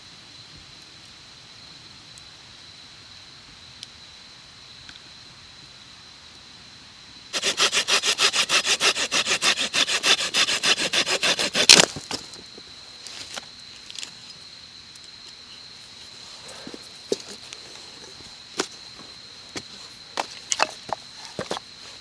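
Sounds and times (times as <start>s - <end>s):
hand saw cutting wood: 7.3s - 12.3s, 16.4s - 21.6s.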